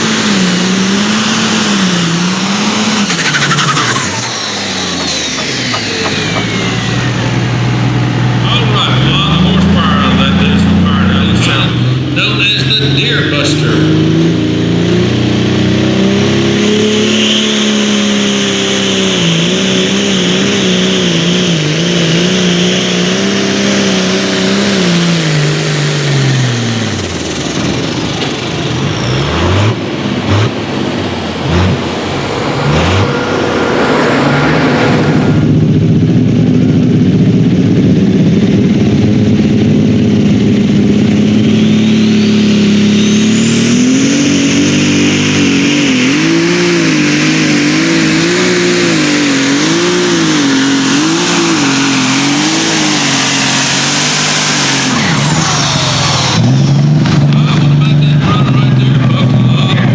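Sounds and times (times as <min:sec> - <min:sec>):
tractor engine revving: 0:00.0 - 0:59.9.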